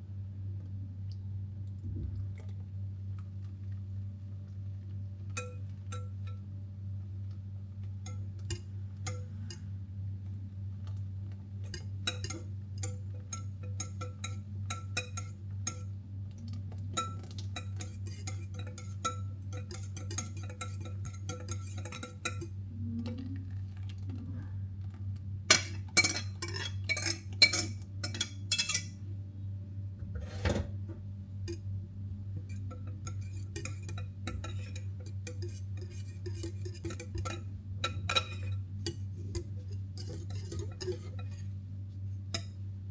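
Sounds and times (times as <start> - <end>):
metal utensil clinking on bowl: 5.3 - 6.4, 11.6 - 15.9, 16.9 - 22.6, 25.5 - 29.0, 32.4 - 41.5.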